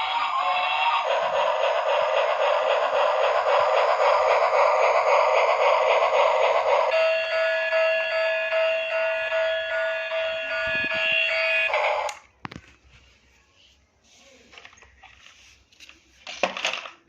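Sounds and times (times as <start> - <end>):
toy fast-pulsing buzzy whirr: 0.0 - 8.0
toy electronic alarm tone: 6.9 - 12.2.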